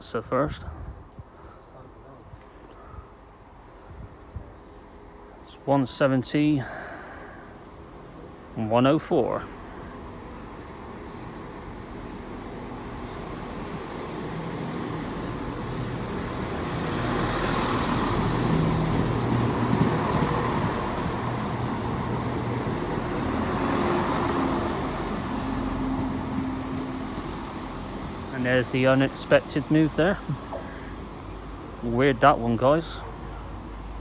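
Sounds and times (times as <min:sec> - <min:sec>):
diesel train engines: 0:00.0 - 0:34.0
train wheel noise: 0:09.2 - 0:34.0.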